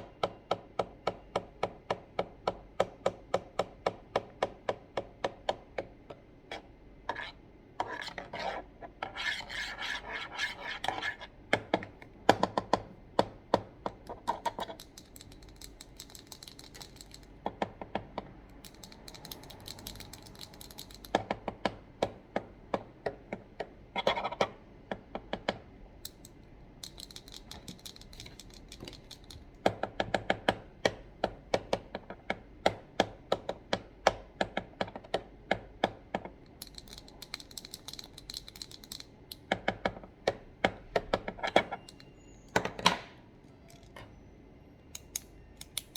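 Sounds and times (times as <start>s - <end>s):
keyboard and mouse clicks: 14.0s - 17.3s, 18.5s - 21.4s, 26.1s - 29.4s, 36.5s - 39.9s, 45.0s - 45.9s.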